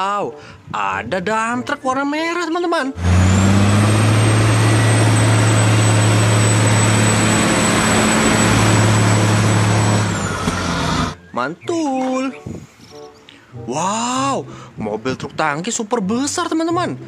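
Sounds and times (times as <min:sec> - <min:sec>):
truck diesel engine running: 0:03.0 - 0:11.2
thin high whine: 0:03.1 - 0:11.2.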